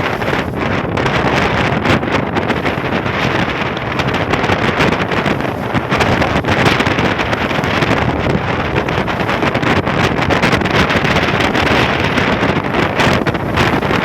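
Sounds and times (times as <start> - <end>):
boat running noise: 0.0 - 14.0
waves: 0.0 - 14.0
wind buffeting microphone: 0.0 - 14.0.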